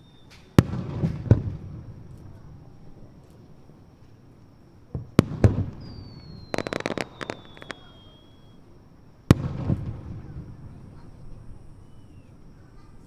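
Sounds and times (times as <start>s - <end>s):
high whistle falling in pitch: 0.0s - 0.5s, 5.9s - 8.6s
crackling pops: 0.0s - 8.6s
firework booms: 0.0s - 13.0s.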